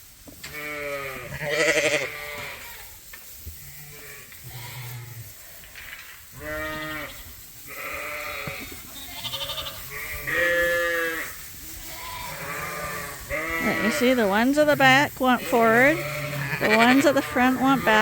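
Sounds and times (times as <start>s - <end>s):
sheep bleating: 0.5s - 2.9s, 6.4s - 18.0s.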